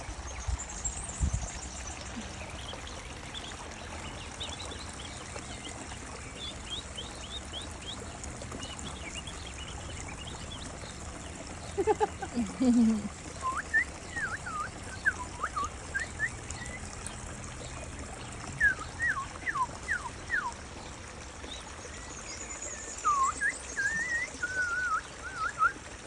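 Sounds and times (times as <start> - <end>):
small waterfall trickling: 0.0 - 26.0
bird whistling song: 13.4 - 16.9, 18.4 - 20.6, 21.5 - 25.9.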